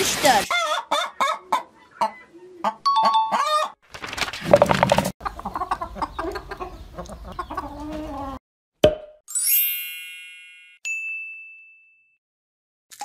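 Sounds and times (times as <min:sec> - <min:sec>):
higher ding: 0:02.9 - 0:03.6
cartoon hens clucking: 0:05.2 - 0:08.4.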